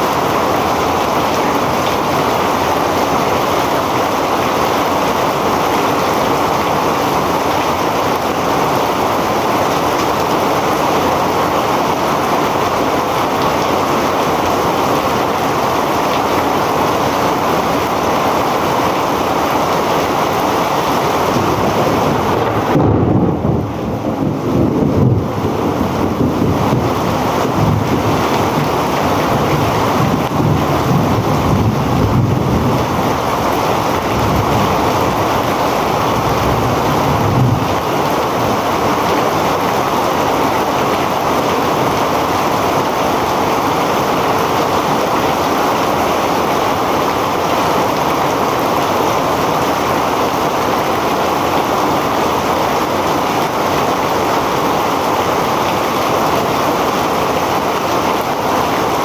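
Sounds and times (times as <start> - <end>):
heavy rain falling: 0.0 - 59.0
low rumble: 21.3 - 35.5.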